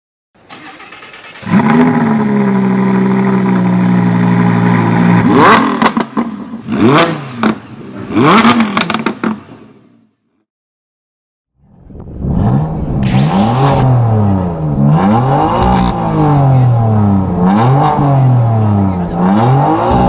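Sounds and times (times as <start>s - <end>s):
motorcycle engine revving: 1.3s - 9.4s, 12.0s - 20.0s.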